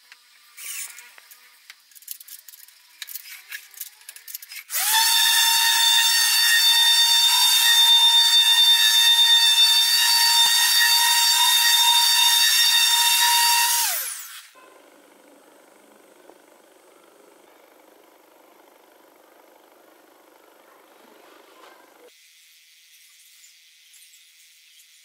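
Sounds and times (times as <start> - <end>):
orbital sander whine on wood: 4.8 - 22.1.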